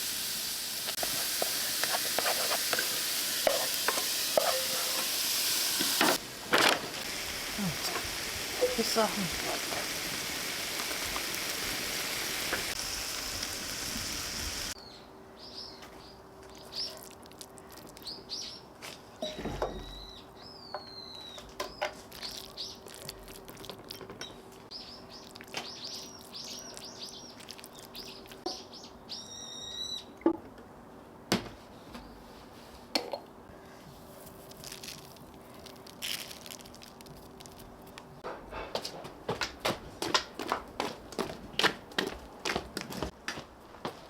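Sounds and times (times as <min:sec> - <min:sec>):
steady hiss: 0:00.0 - 0:14.8
songbirds chirping and whistling: 0:14.8 - 0:17.0, 0:19.6 - 0:22.9, 0:24.2 - 0:30.2.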